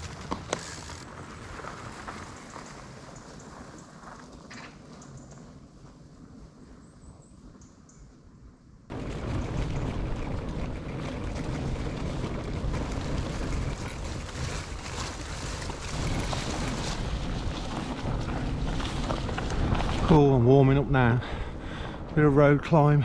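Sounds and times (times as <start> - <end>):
bike tyres rolling: 0.0 - 6.5, 8.9 - 22.2
wind buffeting microphone: 8.9 - 22.7.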